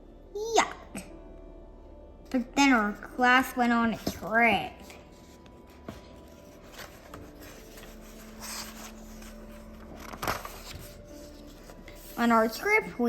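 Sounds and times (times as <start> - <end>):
faint steady hum: 0.0 - 13.0
book pages rustling: 3.8 - 13.0.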